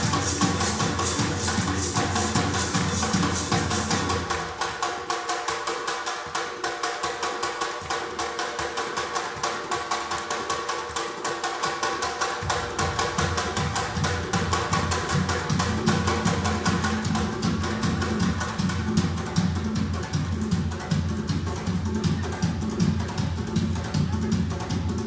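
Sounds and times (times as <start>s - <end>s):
fast percussive pulse: 0.0s - 25.0s.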